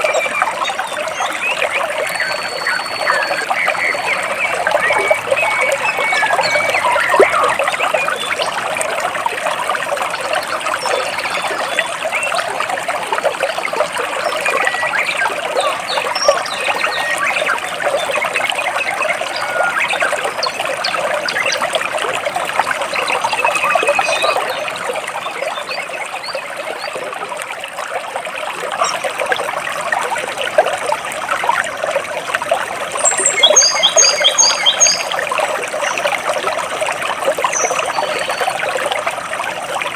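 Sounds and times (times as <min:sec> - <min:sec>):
birds chirping: 0:00.0 - 0:08.6, 0:33.0 - 0:36.1
stream water trickling over rocks: 0:00.0 - 0:39.9
bird high chirps: 0:33.0 - 0:35.1.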